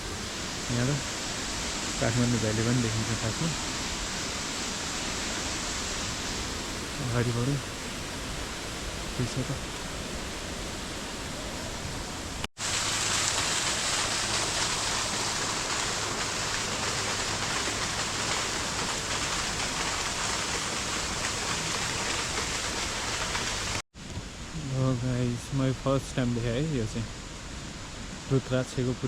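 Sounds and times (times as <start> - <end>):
waterfall rushing: 0.0 - 23.8.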